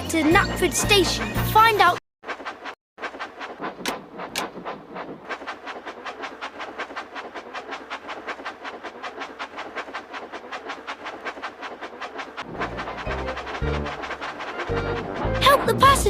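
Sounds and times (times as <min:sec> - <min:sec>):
cartoon steam train chugging: 0:00.0 - 0:16.0.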